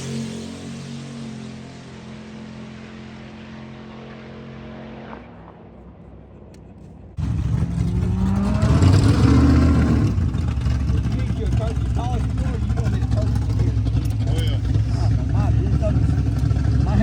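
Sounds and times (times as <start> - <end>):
car engine accelerating hard: 7.2 - 17.0
car engine running: 7.2 - 17.0.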